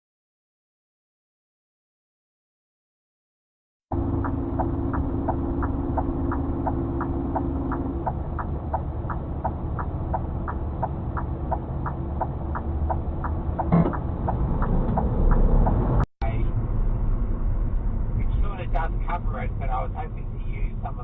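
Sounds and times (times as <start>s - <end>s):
turn signal ticking: 3.9s - 16.1s
engine and road rumble in car: 3.9s - 21.0s.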